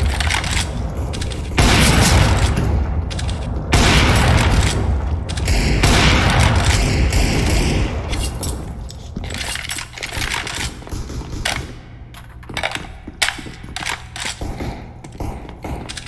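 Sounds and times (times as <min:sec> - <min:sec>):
thunder rumbling: 0:00.0 - 0:11.0.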